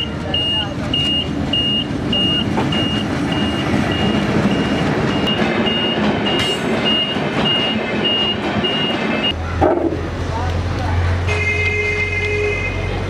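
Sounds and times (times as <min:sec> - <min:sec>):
high electronic warning beeps: 0:00.0 - 0:09.4
train wheels rumbling and clattering: 0:00.0 - 0:11.3.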